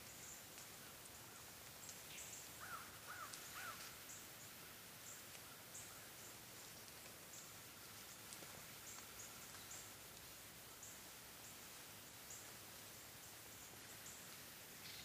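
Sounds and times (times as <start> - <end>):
faint bird calling: 2.2 - 4.2, 14.8 - 15.0.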